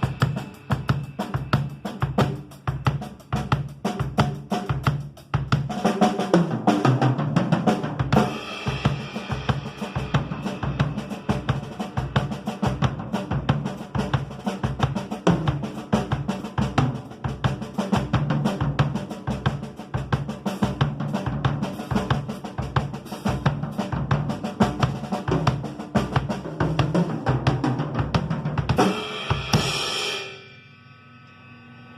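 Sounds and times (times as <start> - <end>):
drum kit playing fast groove: 0.0 - 30.5
cymbal crash: 28.8 - 31.9.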